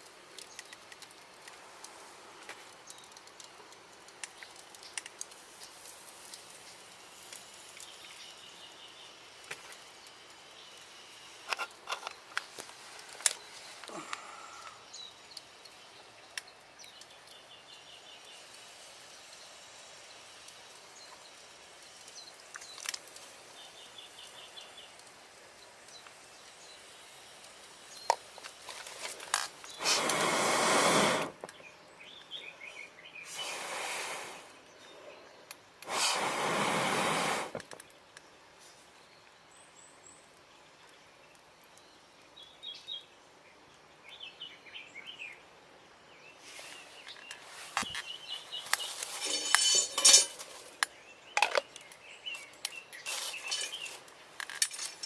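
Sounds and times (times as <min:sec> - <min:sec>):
light clicks and crackles: 0:00.0 - 0:08.4, 0:09.4 - 0:14.3, 0:15.0 - 0:18.8, 0:20.4 - 0:23.6, 0:24.2 - 0:26.8, 0:27.4 - 0:30.3, 0:46.4 - 0:55.0
small birds chirping: 0:12.1 - 0:55.0
blowing air through a pipe: 0:29.7 - 0:31.4, 0:33.3 - 0:34.6, 0:35.8 - 0:37.6.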